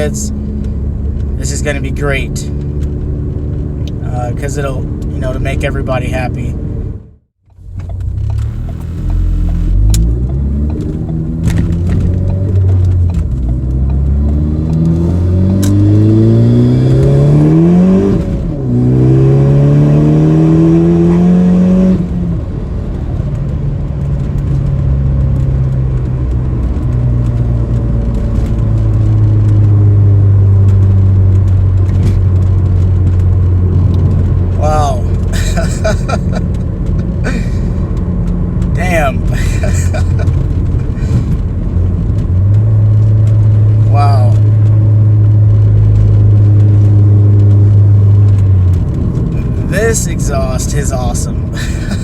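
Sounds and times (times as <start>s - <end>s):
car engine accelerating: 0.0s - 52.0s
deep bass exhaust: 0.0s - 52.0s.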